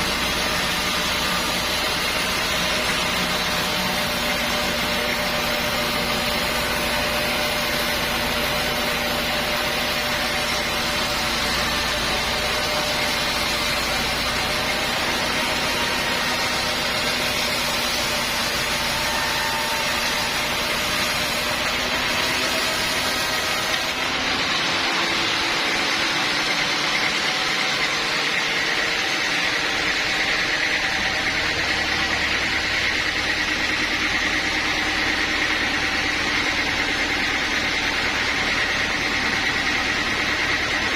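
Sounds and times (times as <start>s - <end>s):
high machine whine: 0.0s - 40.9s
sawmill machinery hum: 0.0s - 40.9s.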